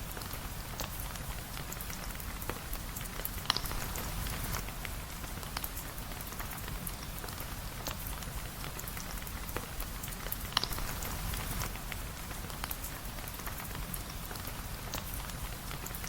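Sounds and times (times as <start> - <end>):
sharp ticks of raindrops: 0.0 - 16.0
steady rain: 0.0 - 16.0.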